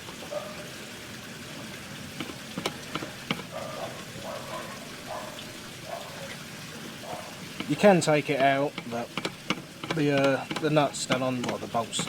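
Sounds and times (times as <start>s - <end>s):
small metal parts clicking: 8.4s - 12.0s.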